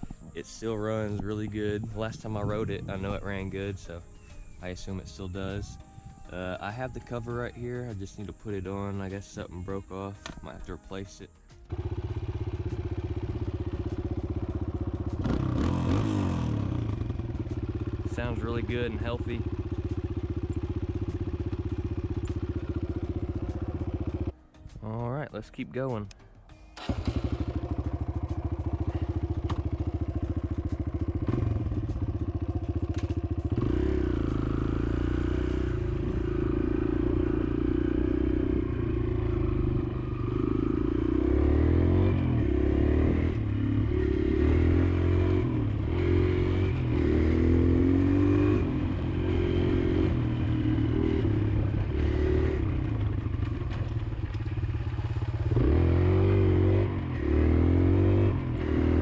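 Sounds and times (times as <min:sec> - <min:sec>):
dirt bike engine revving: 0:11.7 - 0:24.3, 0:26.8 - 0:59.0.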